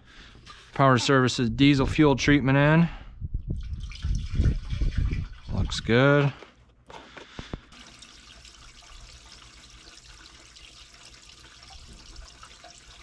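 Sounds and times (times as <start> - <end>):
diesel pouring into fuel tank: 3.6 - 5.9, 7.6 - 13.0.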